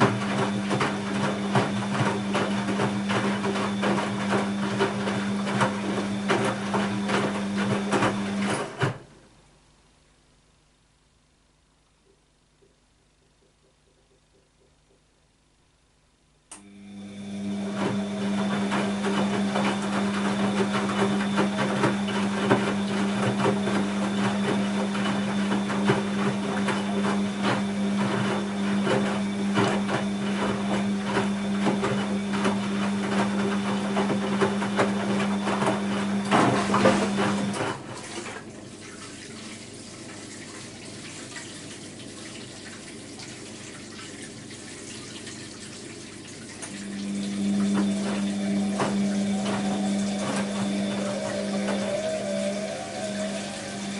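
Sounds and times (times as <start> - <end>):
washing machine electric hum: 0.0 - 53.9
water rushing and gurgling: 46.5 - 53.9.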